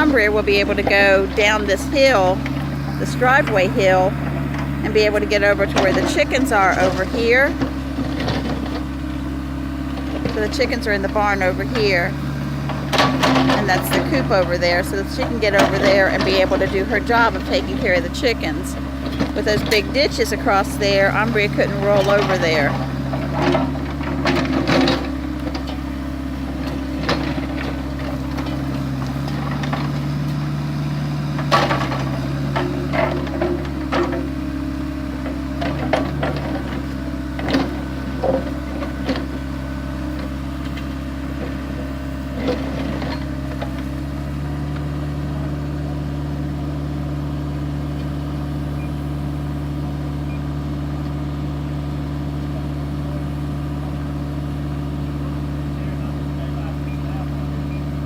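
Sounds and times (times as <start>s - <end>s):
excavator diesel engine running: 0.0s - 58.0s
clanks and knocks from digging: 12.2s - 14.4s, 21.1s - 30.4s, 31.2s - 34.6s, 35.2s - 45.2s.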